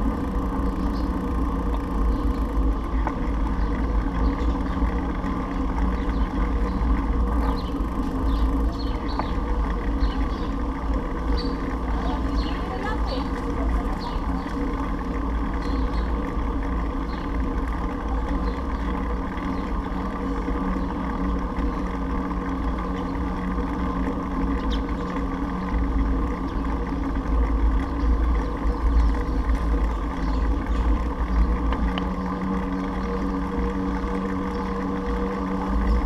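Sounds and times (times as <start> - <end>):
heavy low rumble: 0.0 - 36.0
steady low hum: 0.0 - 36.0.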